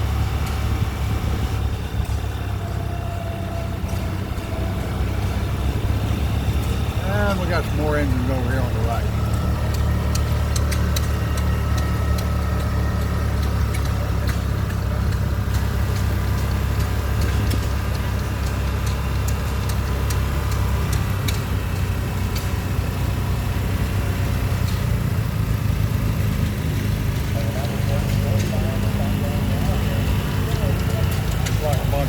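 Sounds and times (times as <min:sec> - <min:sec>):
engine running: 0:00.0 - 0:32.0
faint clicks and ticks: 0:08.6 - 0:23.0.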